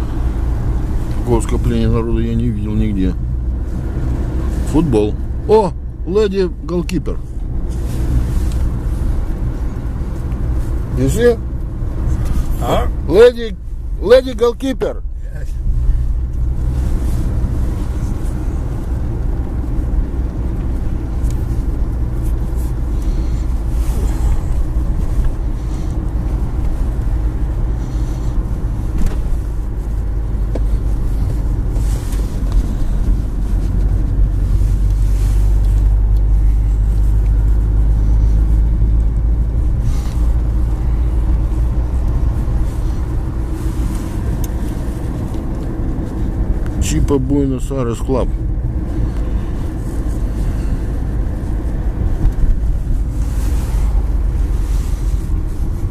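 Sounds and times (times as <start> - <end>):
car engine in cabin: 0.0 - 55.9
road noise: 0.0 - 55.9.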